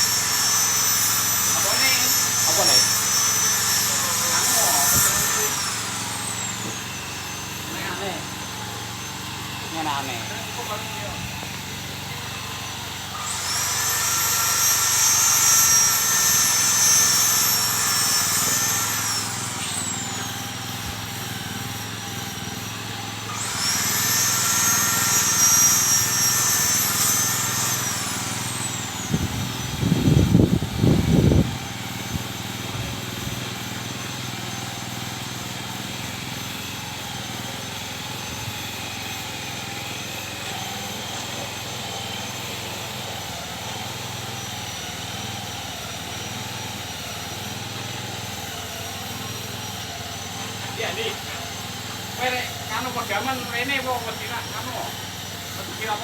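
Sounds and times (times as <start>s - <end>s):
high-pitched mechanical whine: 0.0s - 37.6s.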